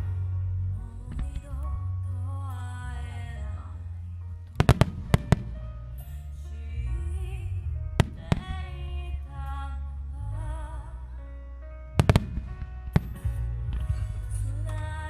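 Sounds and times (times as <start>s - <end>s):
low rumble: 0.0s - 15.0s
music with wavering melody: 0.0s - 15.0s
fireworks bangs: 4.6s - 5.6s, 12.0s - 14.0s.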